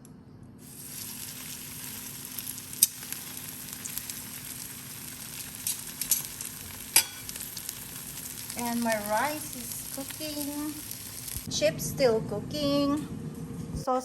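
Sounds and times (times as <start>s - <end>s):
fish sizzling in oil: 0.6s - 11.5s.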